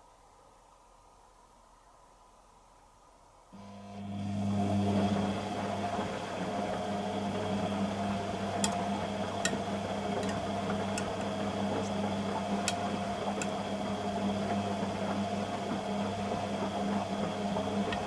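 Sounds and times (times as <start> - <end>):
washing machine motor hum: 3.6 - 18.0.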